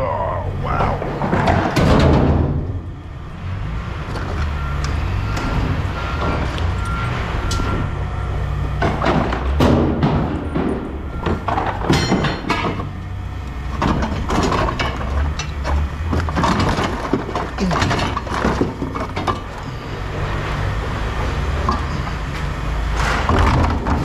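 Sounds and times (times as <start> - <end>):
engine rumbling: 0.0 - 24.0
scrap metal clattering: 8.8 - 12.9, 13.8 - 24.0.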